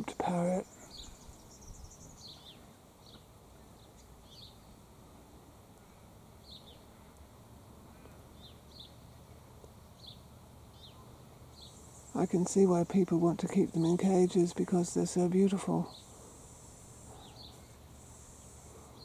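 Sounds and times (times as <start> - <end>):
small bird chirping: 0.0 - 4.7, 13.6 - 19.0
outdoor background hiss: 0.0 - 19.0.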